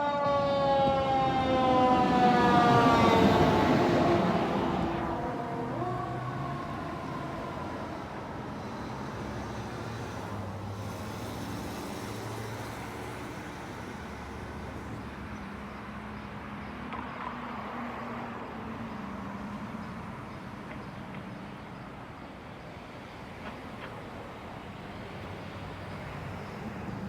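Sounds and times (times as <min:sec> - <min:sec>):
fire truck siren: 0:00.0 - 0:11.0
road traffic rumble: 0:00.0 - 0:27.0.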